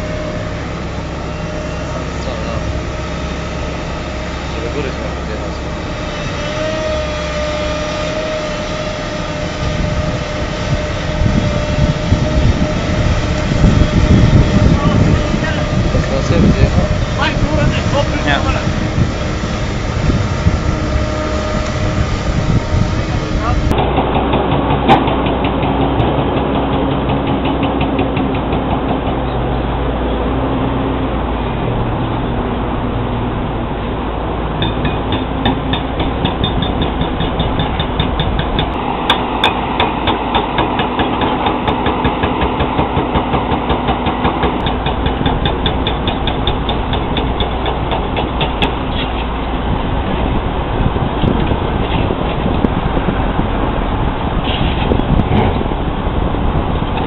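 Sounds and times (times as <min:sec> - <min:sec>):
heavy machine engine whining: 0:00.0 - 0:57.0
low rumble: 0:00.0 - 0:57.0.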